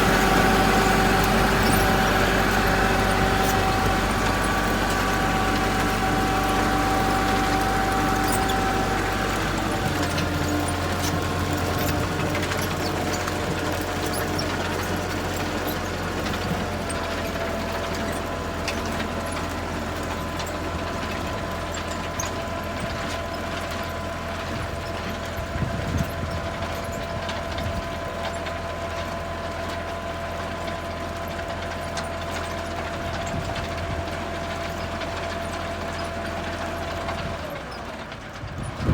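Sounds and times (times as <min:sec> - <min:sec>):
heavy vehicle engine running: 0:00.0 - 0:38.9.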